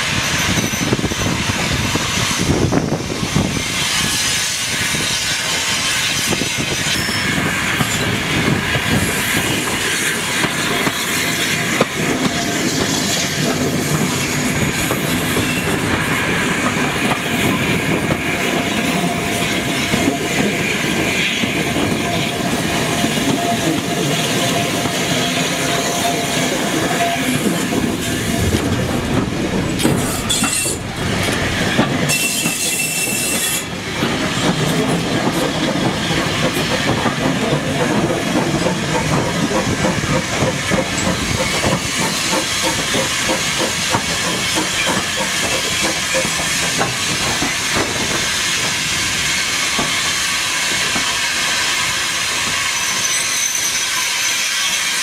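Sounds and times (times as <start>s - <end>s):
wind on microphone: 0.0s - 5.2s, 26.6s - 32.1s
train wheels rumbling on track: 0.0s - 55.0s
wheel squeal: 3.8s - 8.2s, 12.3s - 15.9s, 18.9s - 29.2s, 29.8s - 33.8s, 52.5s - 55.0s.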